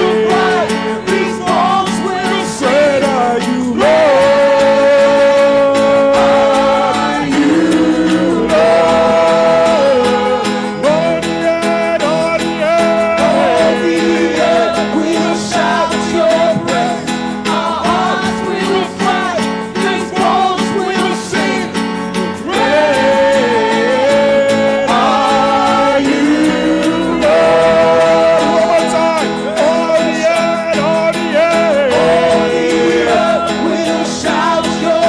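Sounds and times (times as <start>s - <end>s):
sustained chords: 0.0s - 11.4s, 21.4s - 29.7s
guitar: 0.0s - 35.0s
person singing: 0.0s - 35.0s.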